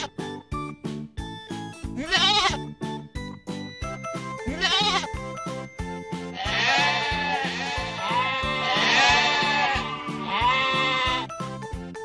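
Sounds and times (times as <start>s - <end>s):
background music with beat: 0.0s - 12.0s
sheep bleating: 2.0s - 2.6s, 4.5s - 5.1s, 6.3s - 11.3s.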